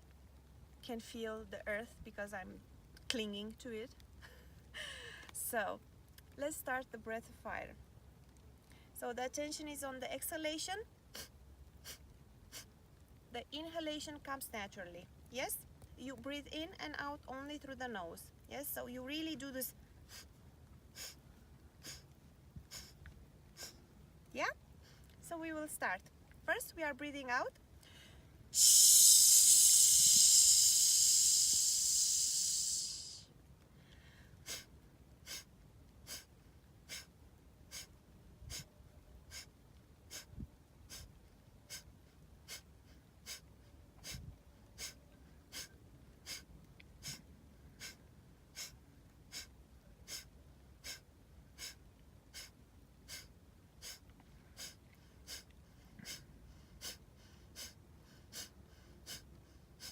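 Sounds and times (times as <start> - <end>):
long hissing exhalation: 27.9 - 33.3, 44.8 - 46.4, 47.8 - 48.0, 48.6 - 49.5, 50.1 - 51.0, 51.6 - 52.5, 53.1 - 54.0, 54.6 - 59.9
woman exhaling forcefully: 28.6 - 33.3.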